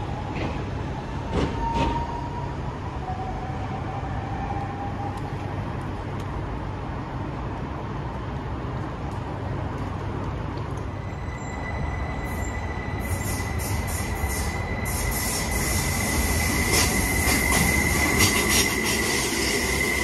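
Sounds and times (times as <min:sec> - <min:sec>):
train pulling in: 0:00.0 - 0:06.8, 0:09.5 - 0:20.0
train station low rumble: 0:00.0 - 0:20.0
high-pitched brake squeal: 0:11.0 - 0:20.0.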